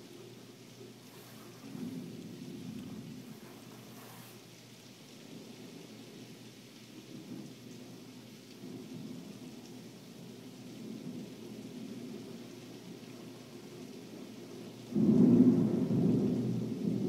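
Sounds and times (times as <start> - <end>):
rain hissing: 0.0 - 17.0
rolling thunder rumble: 0.9 - 4.5, 14.9 - 17.0.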